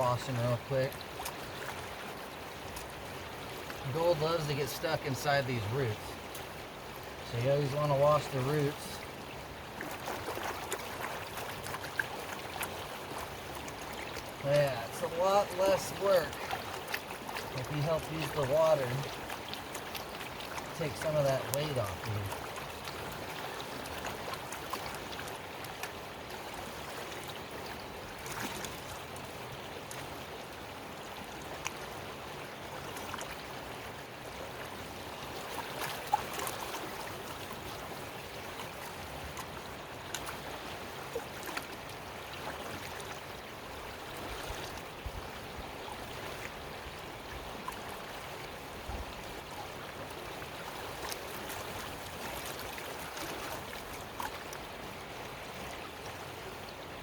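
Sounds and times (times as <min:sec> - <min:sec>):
creek water flowing: 0:00.0 - 0:57.0
gravel clicks and splashes: 0:09.8 - 0:26.0.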